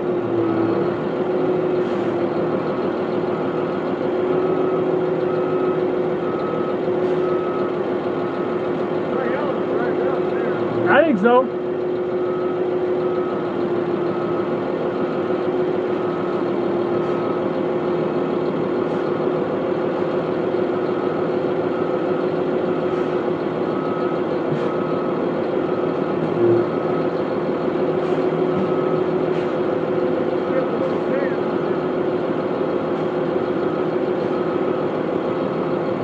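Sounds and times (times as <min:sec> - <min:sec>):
heavy engine running: 0:00.0 - 0:36.0.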